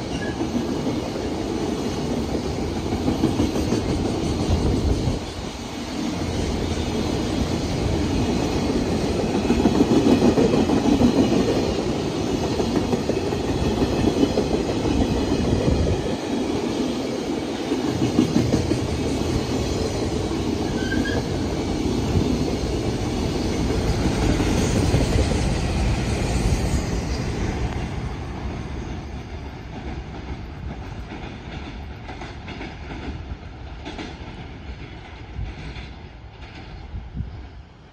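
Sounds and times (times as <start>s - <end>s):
train wheels clacking over rail joints: 0.0s - 5.5s, 27.1s - 36.9s
wheel squeal: 20.7s - 21.4s.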